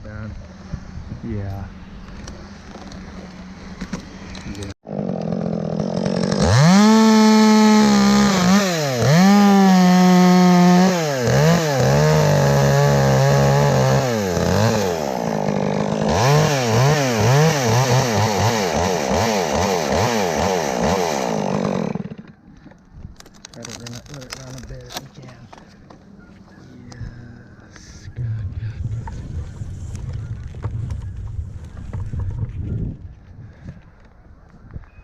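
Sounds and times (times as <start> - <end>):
chainsaw revving: 4.4 - 22.4.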